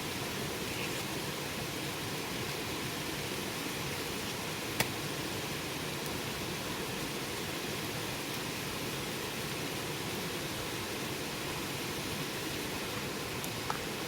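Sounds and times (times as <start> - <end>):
campfire hissing: 0.0 - 14.0
wood crackling pop: 4.8 - 5.0.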